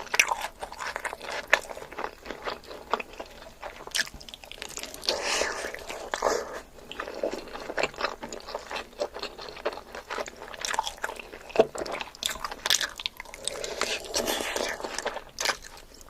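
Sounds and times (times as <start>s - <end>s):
person chewing crunchy food: 0.0s - 16.0s
wet mouth sounds: 10.6s - 15.9s.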